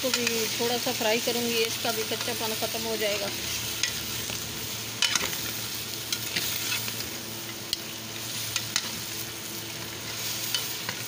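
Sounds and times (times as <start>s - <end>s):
chicken feet sizzling in oil: 0.0s - 11.0s
metal spoon scraping a pan: 6.1s - 6.9s.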